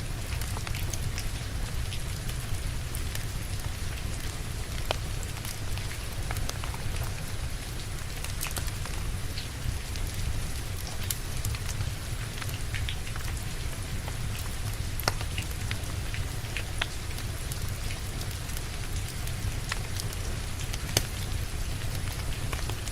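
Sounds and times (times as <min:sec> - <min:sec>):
steady rain: 0:00.0 - 0:22.9
wood fire crackling and popping: 0:00.1 - 0:22.9.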